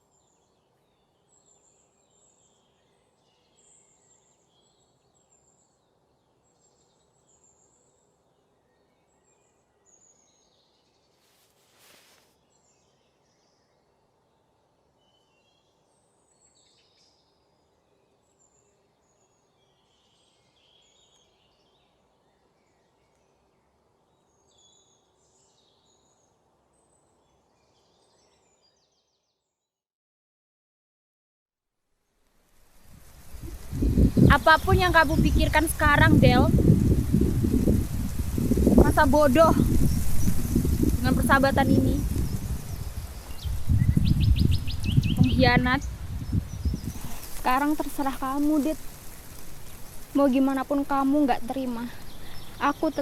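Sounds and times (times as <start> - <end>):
low steady hiss: 0.0 - 29.2, 31.8 - 53.0
small birds chirping: 32.8 - 53.0.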